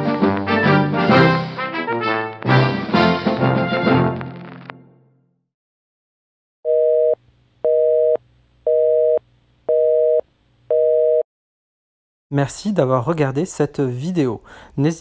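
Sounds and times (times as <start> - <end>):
telephone busy signal beeps: 6.7 - 11.2.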